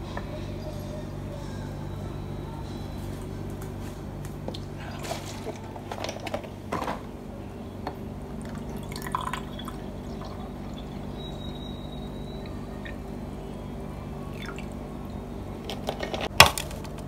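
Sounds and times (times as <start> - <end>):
steady low hum: 0.0 - 17.0
liquid pouring into a glass: 8.5 - 11.2.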